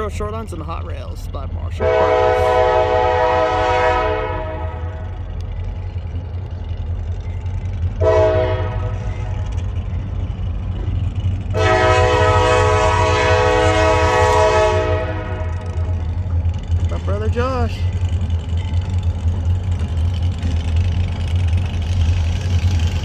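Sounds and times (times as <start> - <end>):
diesel engines rumbling: 0.0 - 23.0
locomotive air horn blasts: 1.8 - 5.1, 8.0 - 9.4, 11.5 - 16.2.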